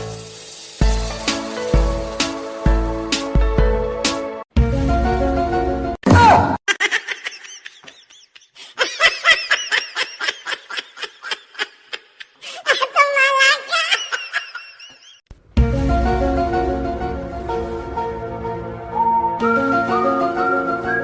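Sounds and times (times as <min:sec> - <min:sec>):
high-pitched laughter: 0:06.7 - 0:15.2.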